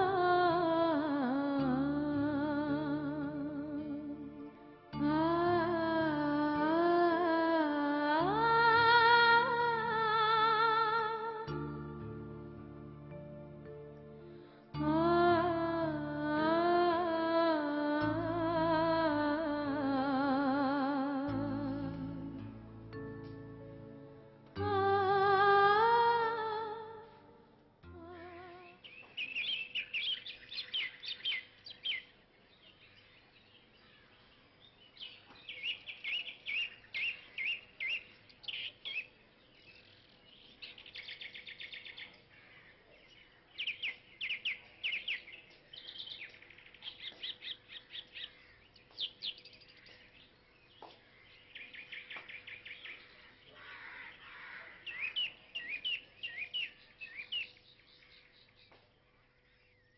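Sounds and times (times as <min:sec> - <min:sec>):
small birds chirping: 0:27.8 - 0:59.9.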